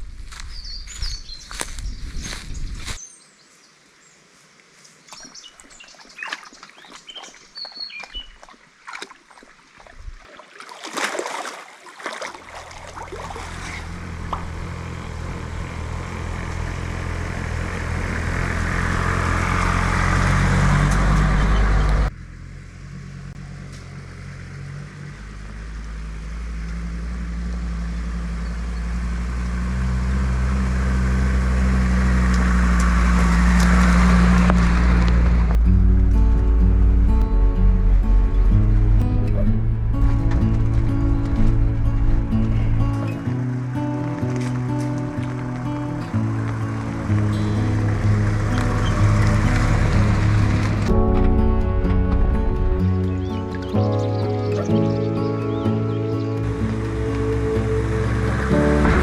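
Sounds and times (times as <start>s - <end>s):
diesel vehicle engine: 0.0s - 3.0s, 12.6s - 59.0s
birds chirping: 0.4s - 10.2s, 18.4s - 22.1s, 36.2s - 58.8s.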